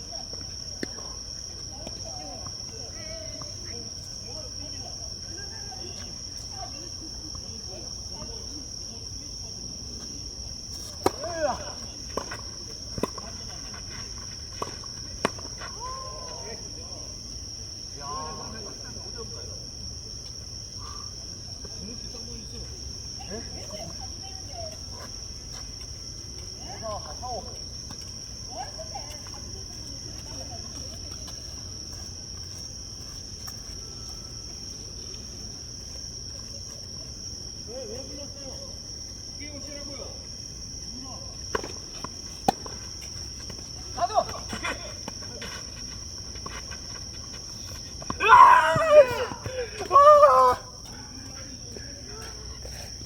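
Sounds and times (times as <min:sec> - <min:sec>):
insects high-pitched drone: 0:00.0 - 0:53.0
tennis ball hits and bounces: 0:41.5 - 0:43.6.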